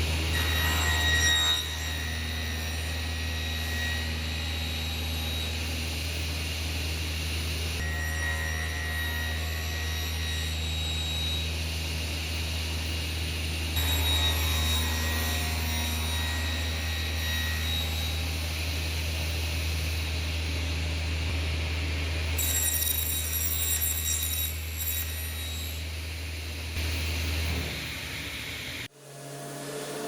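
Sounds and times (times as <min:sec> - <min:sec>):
woodworking machinery roaring: 0:00.0 - 0:30.0.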